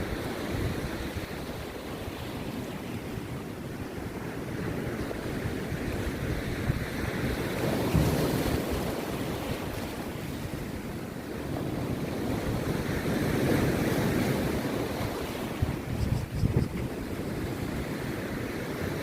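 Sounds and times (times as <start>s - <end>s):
rough sea surf breaking: 0.0s - 19.0s
wind buffeting microphone: 0.0s - 19.0s.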